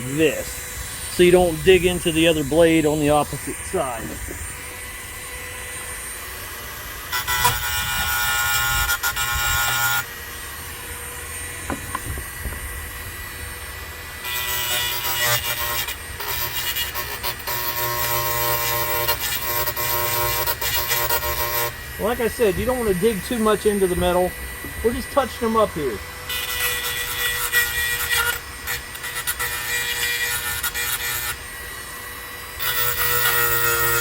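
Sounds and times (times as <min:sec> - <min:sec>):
metal grinding on hedge trimmer blade: 0:00.0 - 0:06.2, 0:14.2 - 0:34.0.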